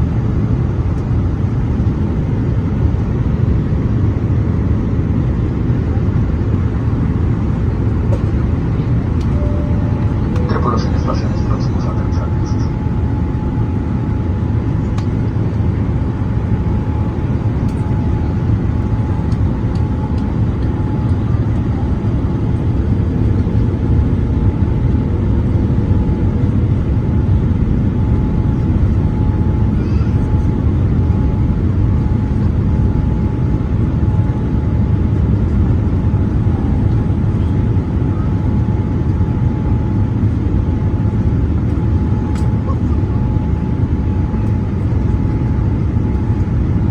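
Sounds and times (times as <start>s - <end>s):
aircraft cabin engine rumble: 0.0s - 46.9s
faint steady whine: 7.7s - 23.6s.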